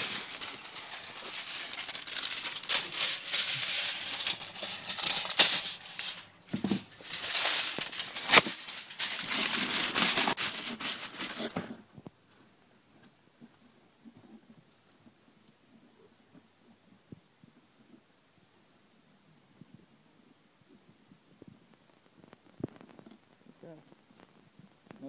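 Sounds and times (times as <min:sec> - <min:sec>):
aluminum foil crinkling: 0:00.0 - 0:11.8.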